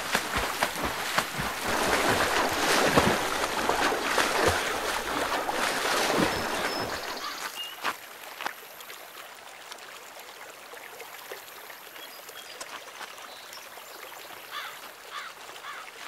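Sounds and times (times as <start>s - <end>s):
heavy splashing of river water: 0.0s - 8.4s.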